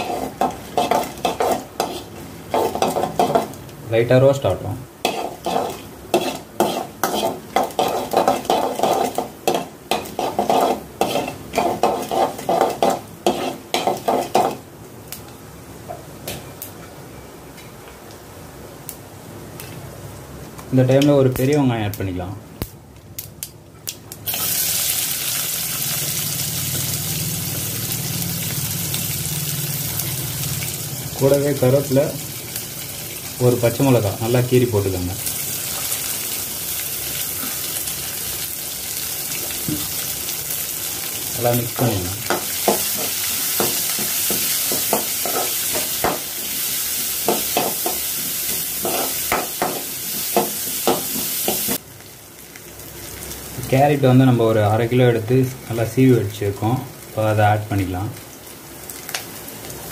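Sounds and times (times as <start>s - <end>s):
metal spoon scraping a pan: 0.0s - 3.5s, 5.0s - 14.6s
onion sizzling in hot oil: 0.0s - 16.3s, 20.8s - 59.9s.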